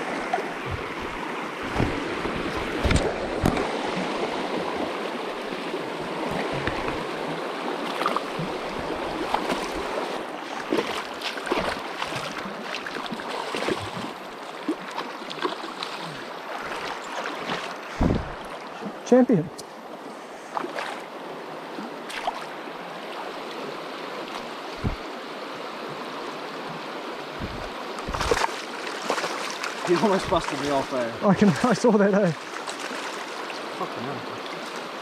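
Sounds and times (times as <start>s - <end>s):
river water rushing over stones: 0.0s - 35.0s
short knocks and bumps: 0.6s - 3.7s, 18.0s - 18.4s, 24.8s - 25.0s, 27.4s - 28.5s.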